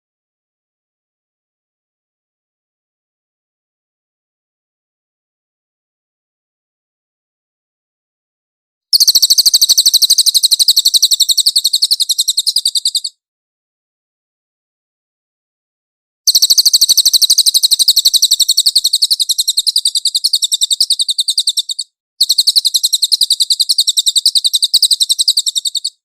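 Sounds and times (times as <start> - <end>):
songbird trilling: 9.0 - 13.2, 16.3 - 26.0.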